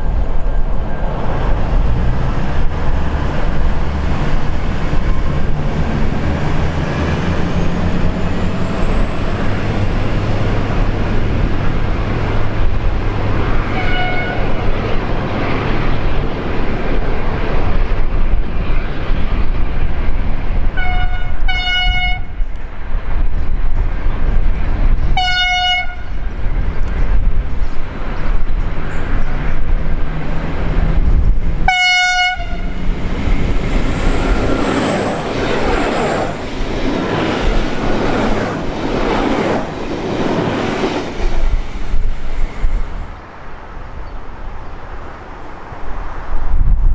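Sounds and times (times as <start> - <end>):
diesel train engine and wheels: 0.0 - 46.9
train horn blasts: 13.7 - 14.6, 20.8 - 22.4, 25.2 - 26.2, 31.6 - 32.9.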